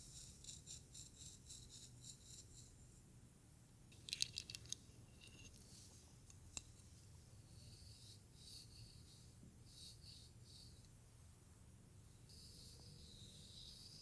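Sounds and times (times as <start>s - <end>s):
tool scratching through hair: 0.0s - 2.8s, 12.3s - 14.0s.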